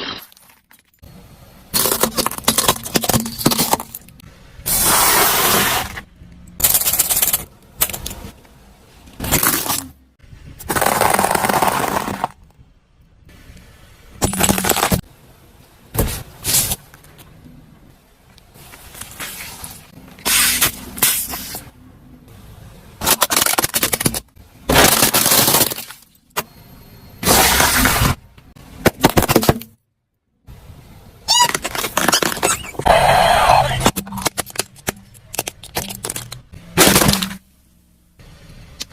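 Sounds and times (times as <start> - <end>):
brittle objects crushed by car: 1.7 - 4.2, 10.7 - 12.5, 23.0 - 26.2, 33.9 - 37.5.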